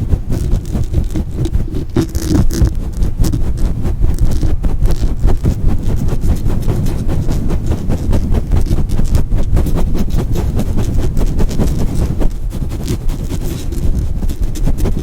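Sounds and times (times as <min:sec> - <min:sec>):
scratching on a microphone: 0:00.0 - 0:15.0.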